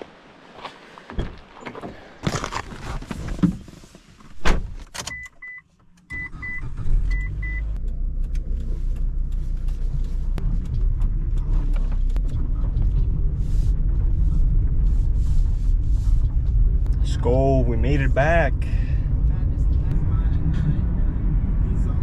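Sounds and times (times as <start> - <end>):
car engine starting and idling: 4.8 - 22.0.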